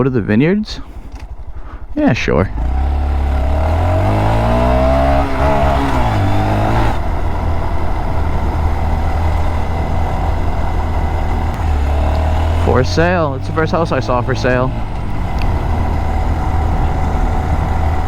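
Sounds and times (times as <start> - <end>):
rush of riding noise: 0.8 - 18.0
mini motorcycle engine: 2.5 - 18.0.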